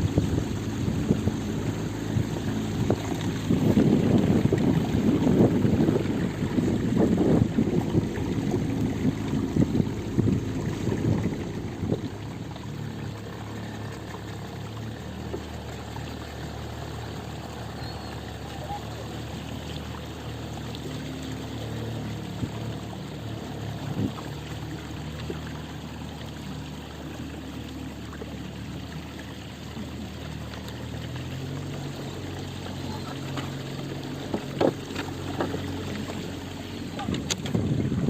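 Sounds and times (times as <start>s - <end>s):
engine humming: 0.0s - 38.0s
wash of noise: 0.0s - 38.0s.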